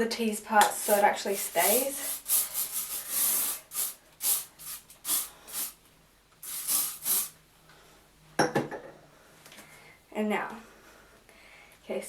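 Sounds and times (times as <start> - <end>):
hairspray hissing spritzes: 0.7 - 5.8, 6.4 - 7.4.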